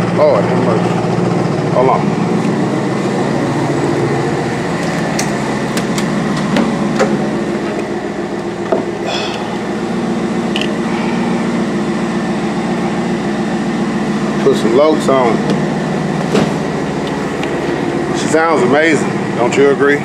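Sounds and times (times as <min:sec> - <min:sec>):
car engine idling: 0:00.0 - 0:20.0
sharp engine clicks and knocks: 0:04.7 - 0:09.0, 0:10.5 - 0:10.8.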